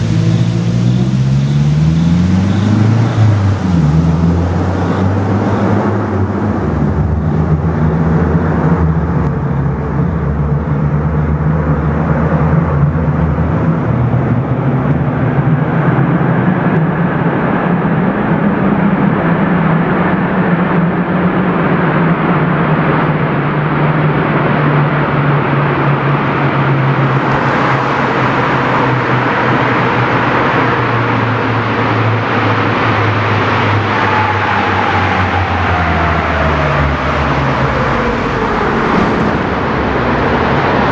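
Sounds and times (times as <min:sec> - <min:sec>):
thin falling whine: 0:00.0 - 0:06.3
car engine accelerating: 0:00.0 - 0:40.9.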